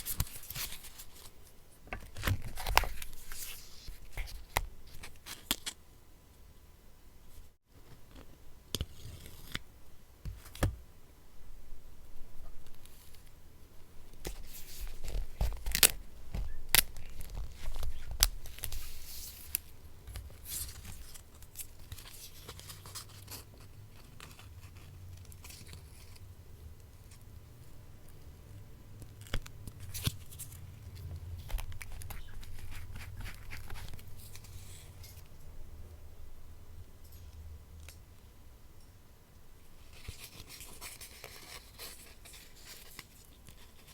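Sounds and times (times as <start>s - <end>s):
paper rustling and tearing: 31.4s - 35.2s.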